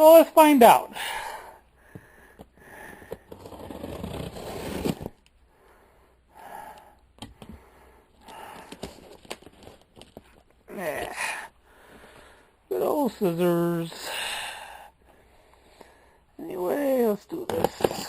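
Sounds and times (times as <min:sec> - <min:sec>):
wrapping rustling and tearing: 0:03.3 - 0:05.3, 0:08.2 - 0:10.6.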